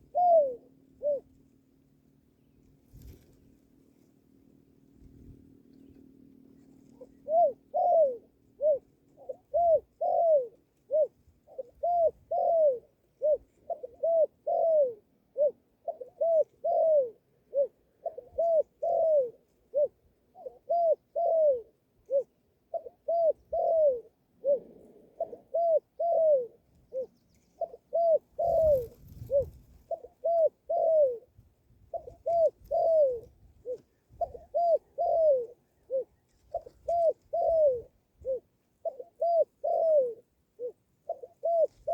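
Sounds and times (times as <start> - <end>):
dove cooing: 0.0 - 1.5, 5.1 - 41.9
brief rustle: 2.8 - 3.6.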